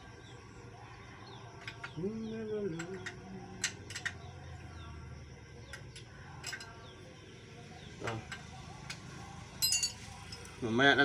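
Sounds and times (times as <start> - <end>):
hand tools clicking and tapping: 1.6 - 2.0, 2.7 - 4.3, 5.7 - 6.8, 8.0 - 10.6.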